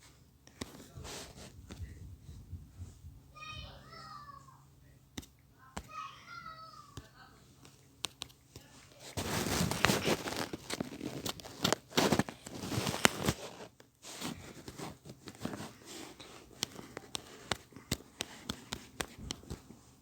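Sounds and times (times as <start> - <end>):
light irregular clicks and taps: 6.9 - 8.8, 14.6 - 19.8
material crinkling and tearing: 9.0 - 17.6.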